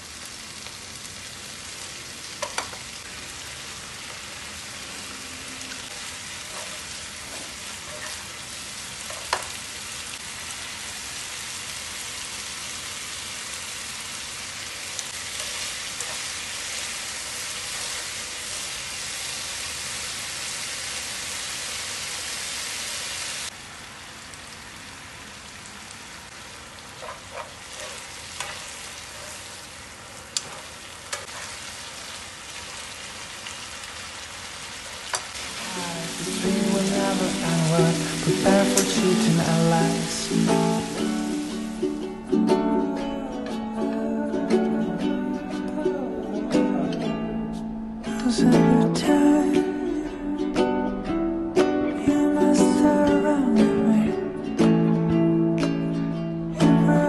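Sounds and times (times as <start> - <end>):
food sizzling in a pan: 0.0 - 42.2.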